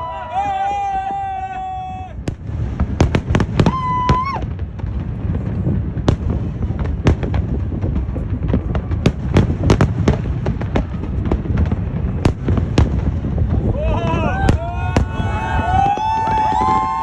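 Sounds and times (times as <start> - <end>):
fireworks bangs: 0.0 - 17.0
steady low rumble: 1.9 - 17.0.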